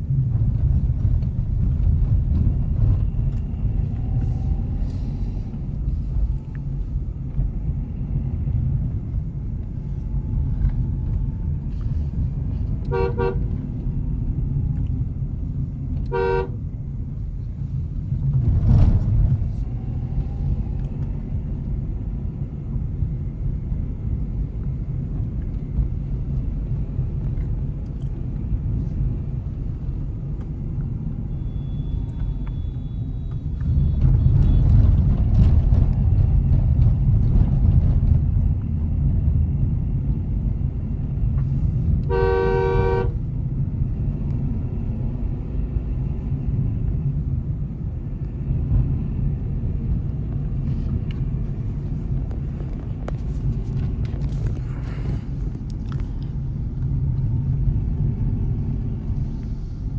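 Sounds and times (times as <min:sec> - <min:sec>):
car engine and tyres rumbling: 0:00.0 - 0:59.9
car horn honks: 0:12.9 - 0:13.5, 0:16.1 - 0:16.6, 0:42.1 - 0:43.2.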